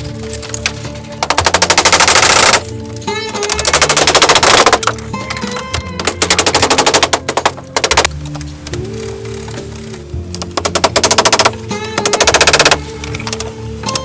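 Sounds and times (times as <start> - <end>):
background music: 0.0 - 14.0
fast mechanical rattle: 1.2 - 8.3, 10.4 - 14.0.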